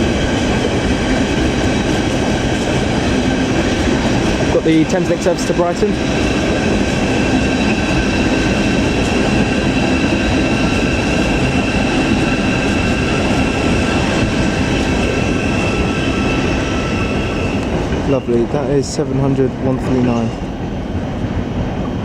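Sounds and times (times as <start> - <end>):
electric train whine: 0.0 - 22.0
wheels rumbling on track: 0.0 - 22.0.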